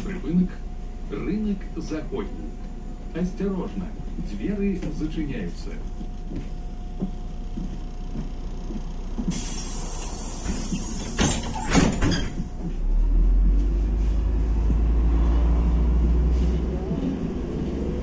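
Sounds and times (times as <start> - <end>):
bus engine droning: 0.0 - 18.0
air hiss of bus doors: 9.3 - 12.6
bus doors knocking shut: 9.3 - 12.8.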